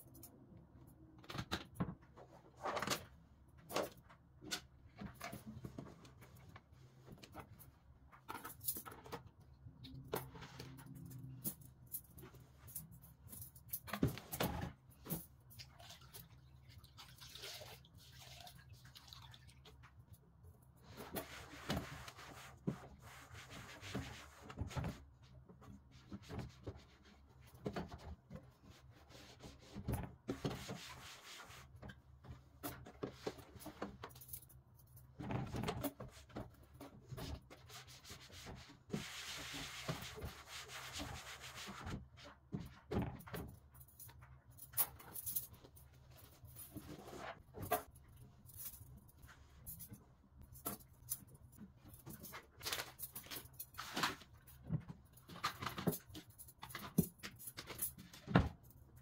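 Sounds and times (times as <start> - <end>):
surfaces being scrubbed and wiped: 20.9 - 25.0, 28.6 - 31.8, 37.5 - 42.2.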